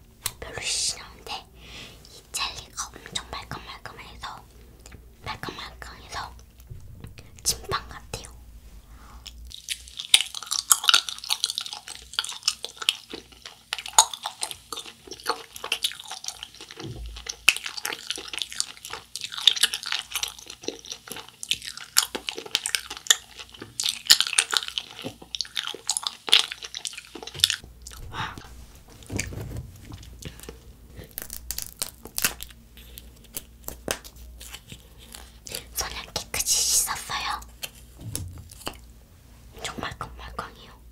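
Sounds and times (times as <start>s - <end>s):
crunchy candy chewing: 9.2s - 38.9s
plastic packaging crinkling: 26.3s - 36.4s.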